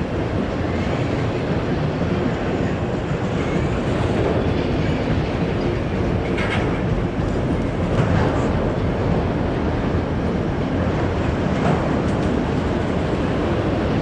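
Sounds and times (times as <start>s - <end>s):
train wheels clattering on rail: 0.0s - 14.0s.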